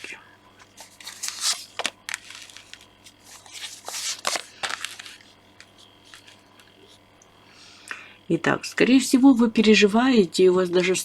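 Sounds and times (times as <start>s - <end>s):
cards rustling: 0.6s - 7.0s
cards snapping and sliding: 0.7s - 6.4s.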